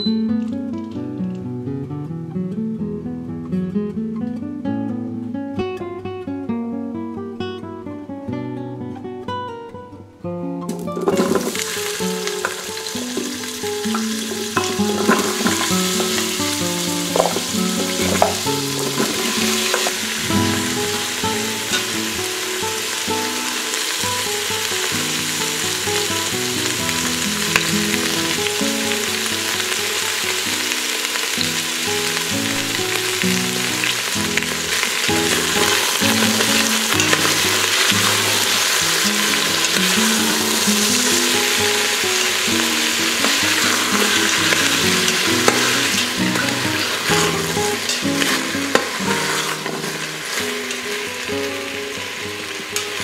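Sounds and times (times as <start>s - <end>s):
light background music: 10.9s - 26.1s, 32.0s - 52.9s
vegetables sizzling in hot oil: 11.0s - 53.0s.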